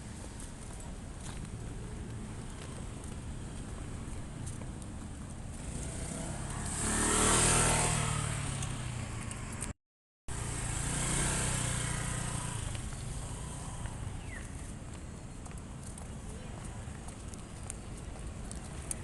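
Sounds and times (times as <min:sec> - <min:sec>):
motor vehicle passing: 0:05.5 - 0:09.7, 0:10.3 - 0:14.8.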